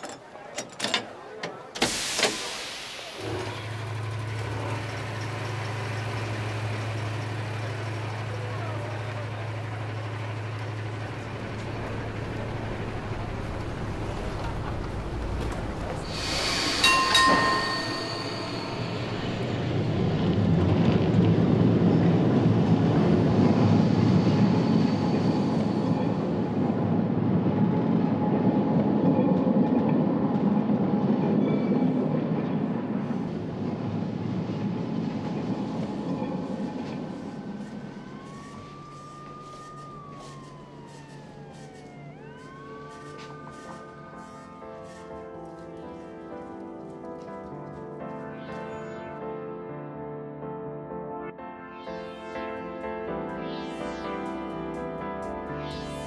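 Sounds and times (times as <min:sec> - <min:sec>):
wheels squealing on rail: 0:01.8 - 0:20.8
passenger train rumbling past: 0:01.8 - 0:48.7.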